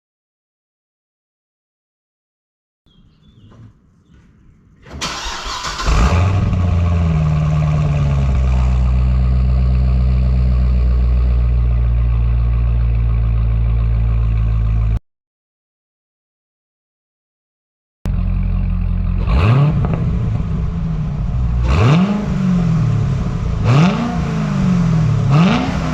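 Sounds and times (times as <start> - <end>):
car engine starting and idling: 2.9 - 15.0, 18.1 - 25.9.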